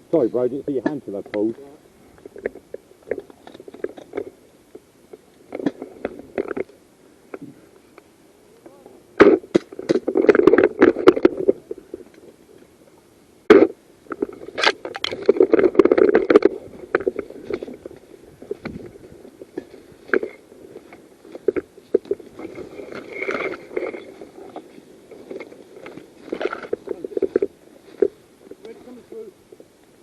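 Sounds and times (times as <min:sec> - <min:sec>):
sharp crack: 0:09.2 - 0:11.6
rustling against microphone: 0:13.5 - 0:30.0.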